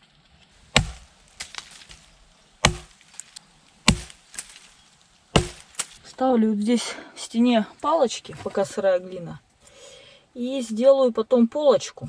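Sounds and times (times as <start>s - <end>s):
chopping blows on wood: 0.7s - 2.0s, 2.6s - 3.0s, 3.9s - 4.7s, 5.4s - 6.0s.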